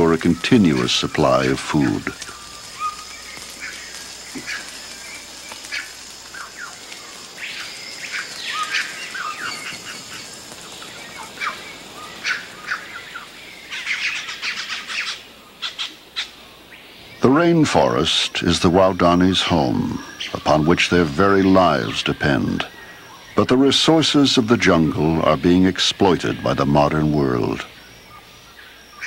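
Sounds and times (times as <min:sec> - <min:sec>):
long arching bird whistle: 0:00.0 - 0:17.3
birds chirping and whistling: 0:00.0 - 0:29.0.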